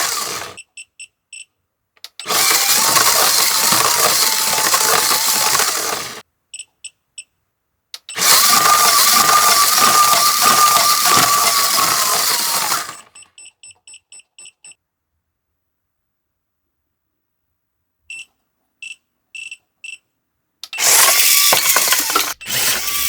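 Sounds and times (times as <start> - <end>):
toy train motor whirring: 0.0 - 0.6, 2.1 - 6.2, 8.0 - 13.2, 20.6 - 23.0
click: 1.3 - 2.3.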